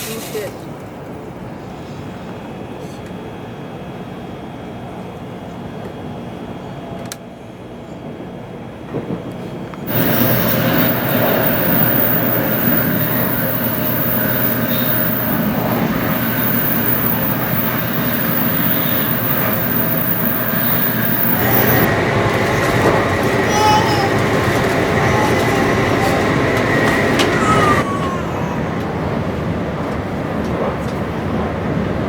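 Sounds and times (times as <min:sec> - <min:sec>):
train rolling rumble: 0:08.0 - 0:32.0.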